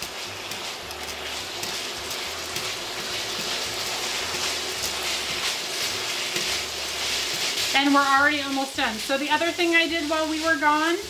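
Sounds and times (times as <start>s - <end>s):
tongs scraping a pan: 0.0s - 10.8s
meat sizzling in a skillet: 0.0s - 11.0s.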